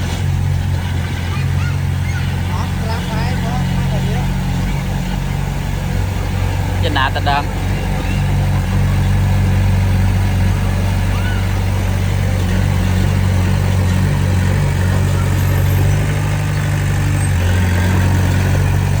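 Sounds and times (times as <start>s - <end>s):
heavy machine diesel engine drone: 0.0s - 19.0s.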